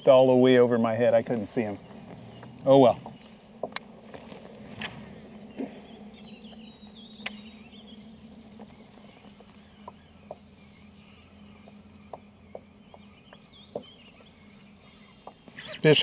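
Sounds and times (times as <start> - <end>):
birds chirping: 0.0 - 16.0
low outdoor hum: 0.0 - 16.0
faint ticks: 8.3 - 10.6, 11.5 - 14.3.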